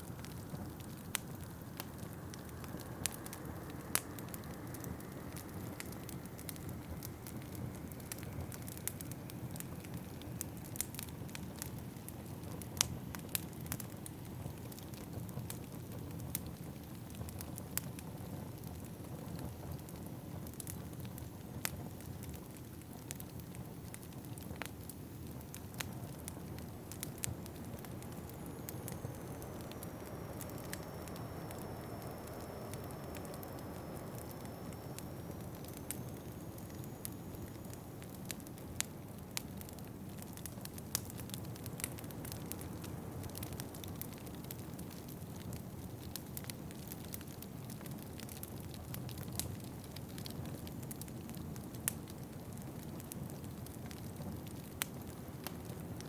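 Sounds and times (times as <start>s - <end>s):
fireplace fire crackling: 0.0s - 56.0s
faint high whistle: 27.1s - 38.2s.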